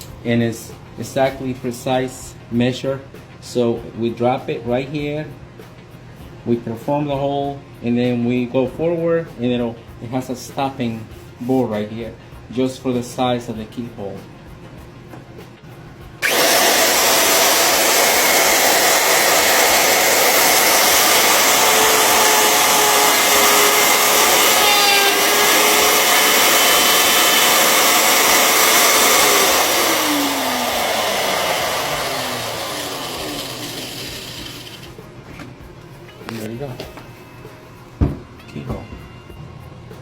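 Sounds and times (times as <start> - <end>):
router spinning down whine: 16.2 - 34.9
electric router cutting wood: 16.2 - 35.0.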